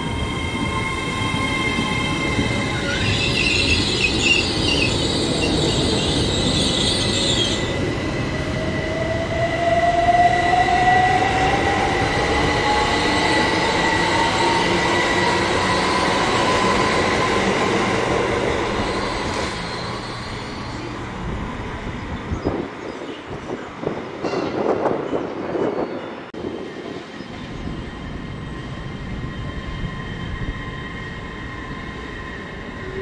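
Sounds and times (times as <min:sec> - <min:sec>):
passenger train whine: 0:00.0 - 0:33.0.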